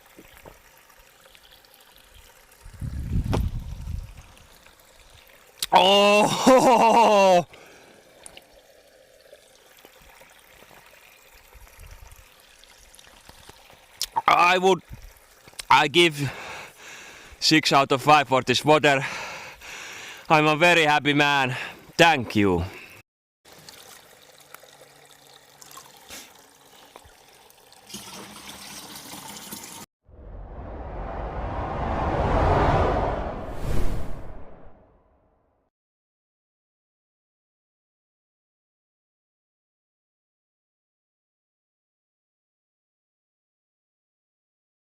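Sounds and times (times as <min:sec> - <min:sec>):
spring water trickling: 0:00.0 - 0:17.4, 0:19.0 - 0:20.4, 0:23.5 - 0:29.9
low rumble: 0:30.1 - 0:34.9
rising whoosh: 0:30.1 - 0:35.0.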